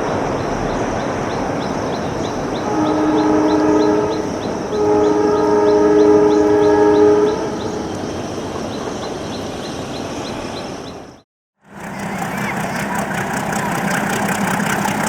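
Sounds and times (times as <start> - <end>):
train rumbling: 0.0 - 15.0
two-tone locomotive horn: 2.6 - 7.9.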